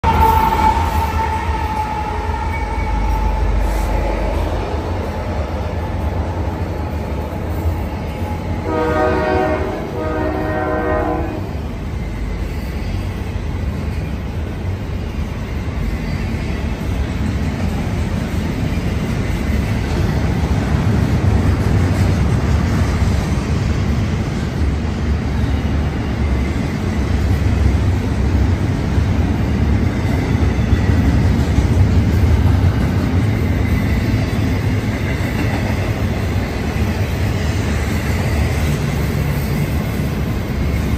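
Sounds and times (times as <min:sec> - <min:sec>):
locomotive horn blasts: 0:00.0 - 0:04.2, 0:08.6 - 0:11.6
freight train rumble and clatter: 0:00.0 - 0:40.9.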